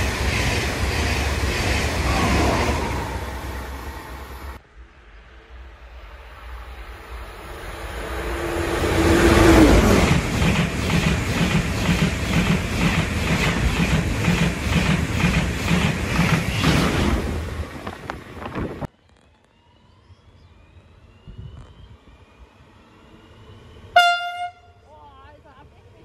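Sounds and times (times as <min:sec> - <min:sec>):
train passing with rising rush: 0:00.0 - 0:26.0
wheels clattering on rails: 0:08.9 - 0:18.9.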